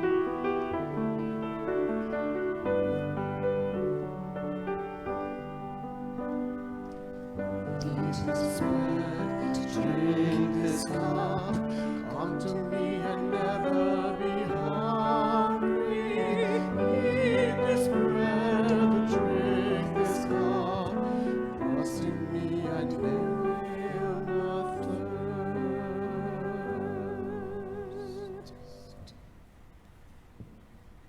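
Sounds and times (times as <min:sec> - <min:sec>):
piano: 0:00.0 - 0:31.0
operatic singing: 0:07.5 - 0:29.1.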